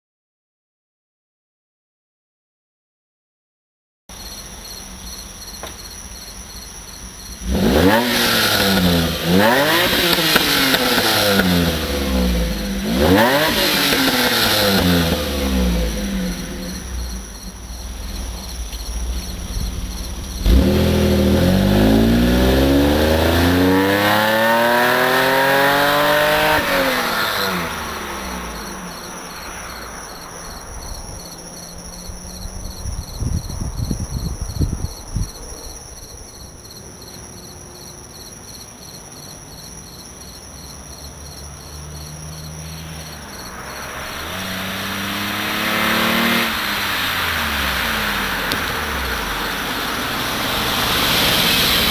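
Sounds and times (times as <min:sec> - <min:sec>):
exhaust crackles: 0:04.8 - 0:32.9, 0:40.7 - 0:51.9
car engine accelerating: 0:04.9 - 0:33.8, 0:39.6 - 0:51.9.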